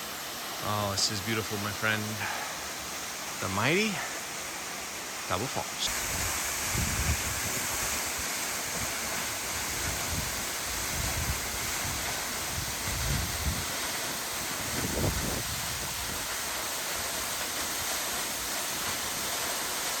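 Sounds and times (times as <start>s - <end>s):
waterfall rushing: 0.0s - 20.0s
wind rumble on microphone: 5.9s - 8.0s, 9.6s - 13.8s, 14.6s - 16.3s.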